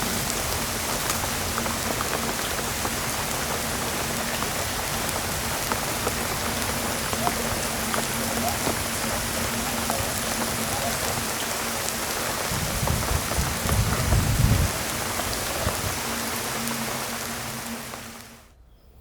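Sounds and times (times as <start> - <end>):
heavy rain falling: 0.0 - 18.5.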